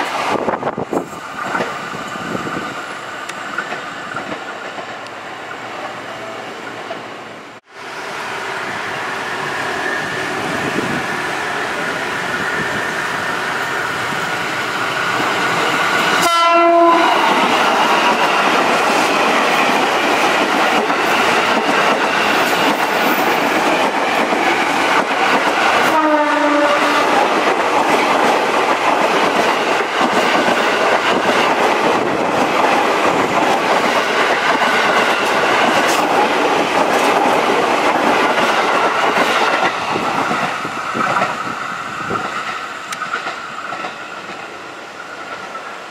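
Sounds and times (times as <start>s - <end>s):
train rumble and rail clatter: 0.0s - 45.9s
train horn blast: 16.2s - 17.4s, 25.8s - 27.2s.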